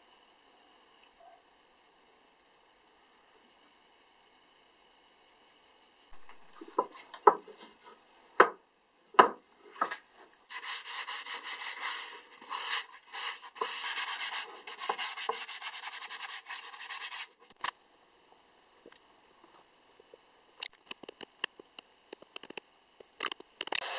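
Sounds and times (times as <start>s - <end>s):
wooden handle knocking on board: 9.2s - 10.0s
hand-sanding wood: 10.5s - 17.4s.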